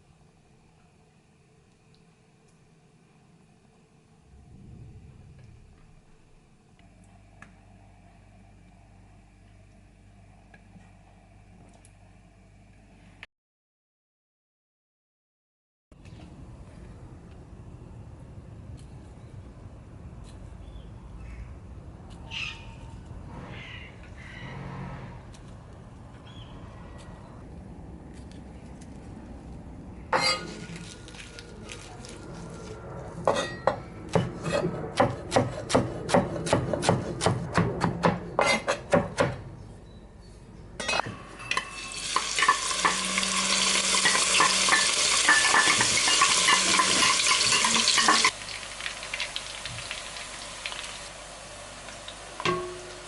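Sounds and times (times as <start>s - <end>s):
food frying with sizzle: 41.6s - 53.0s
utensil clinking against cookware: 44.0s - 48.3s.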